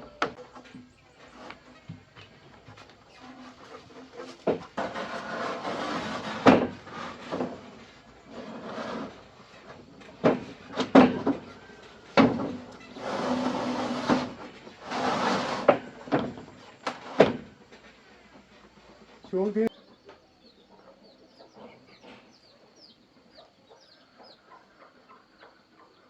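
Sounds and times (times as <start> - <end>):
scraping: 0.0 - 19.7.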